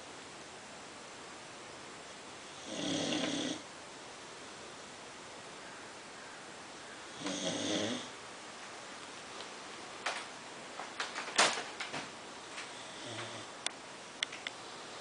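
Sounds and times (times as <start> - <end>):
dog snoring: 2.4 - 3.6, 7.1 - 8.2, 12.7 - 13.5.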